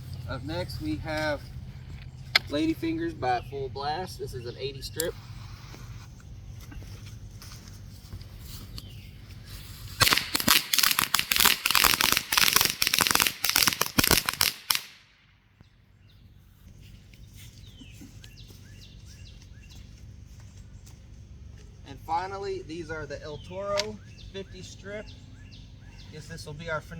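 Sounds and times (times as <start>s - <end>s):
firecrackers cracking: 9.4s - 15.2s.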